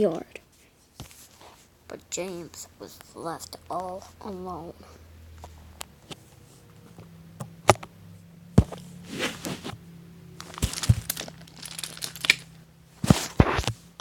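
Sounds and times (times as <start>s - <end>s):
rustling: 8.6s - 9.8s, 10.4s - 13.9s.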